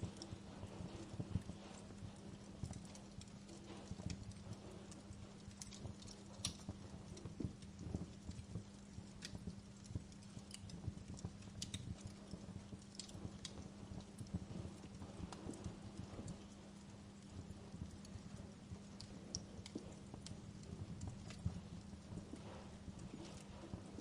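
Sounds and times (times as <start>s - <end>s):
faint steady hum: 0.0s - 24.0s
low rumble of burning logs: 0.0s - 24.0s
wood fire crackling: 0.0s - 24.0s.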